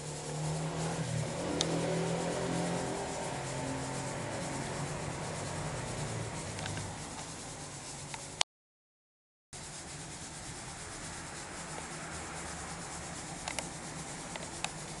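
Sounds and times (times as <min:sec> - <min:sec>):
sharp click: 0:06.6 - 0:07.3.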